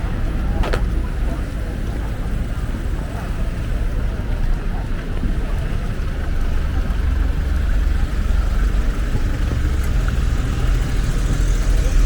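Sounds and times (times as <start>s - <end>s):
road traffic rumble: 0.0s - 12.0s
street noise: 0.0s - 12.0s.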